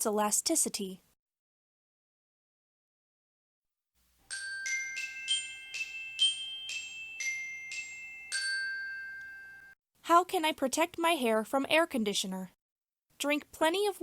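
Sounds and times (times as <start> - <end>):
glockenspiel-like jingle: 4.3 - 9.8.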